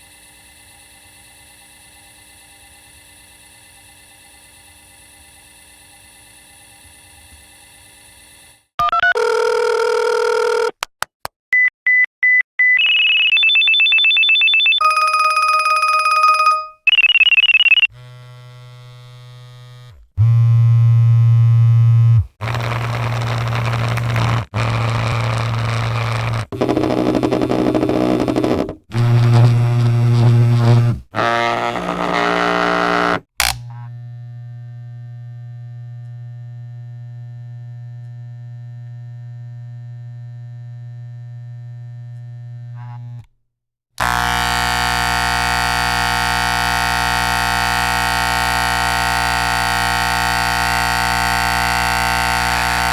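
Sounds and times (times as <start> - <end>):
phone-style ringing: 8.8 - 10.7, 12.8 - 17.9
electronic beeping tones: 15.9 - 17.9
electronic buzzing and humming: 17.9 - 43.3, 44.0 - 52.9.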